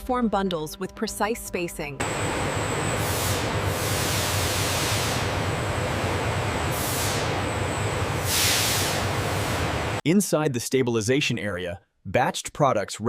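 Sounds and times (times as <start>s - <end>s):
factory machinery hum: 2.0s - 10.0s
air hissing: 2.9s - 10.0s.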